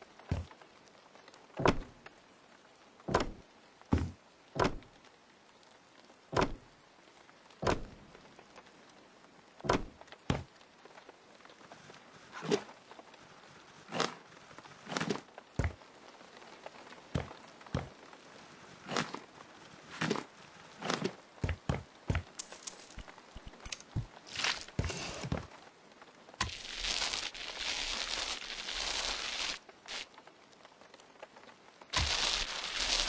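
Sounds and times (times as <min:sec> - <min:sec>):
short sharp knocks and thuds: 0:00.3 - 0:00.5, 0:03.1 - 0:04.9, 0:06.4 - 0:06.6, 0:07.6 - 0:08.0, 0:09.6 - 0:10.5, 0:15.6 - 0:15.8, 0:21.4 - 0:22.4.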